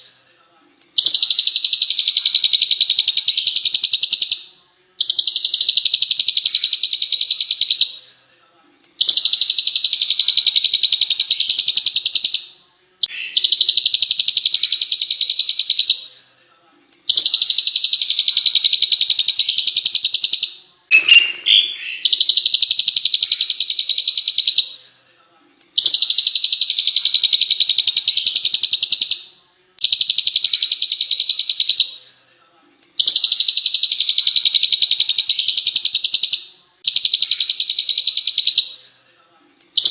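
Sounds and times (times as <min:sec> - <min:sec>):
songbird trilling: 0:19.4 - 0:22.5.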